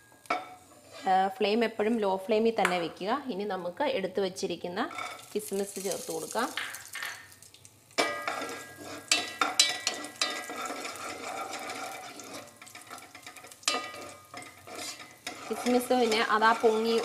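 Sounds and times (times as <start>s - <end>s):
wooden spatula scraping pot: 0.7s - 1.2s, 8.2s - 17.0s
raisins sizzling in ghee: 4.8s - 17.0s.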